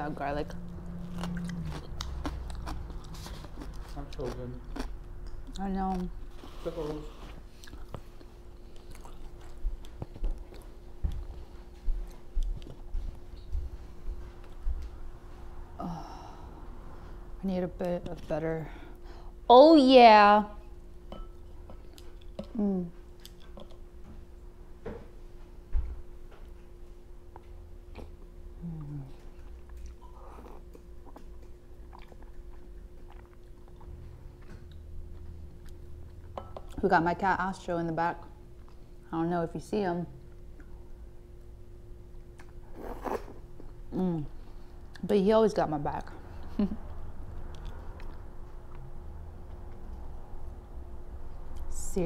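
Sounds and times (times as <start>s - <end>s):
faint steady hum: 0.0s - 52.0s
chewing and mouth sounds: 0.5s - 6.6s, 7.2s - 13.6s, 21.8s - 23.8s, 27.3s - 36.8s, 46.2s - 51.7s.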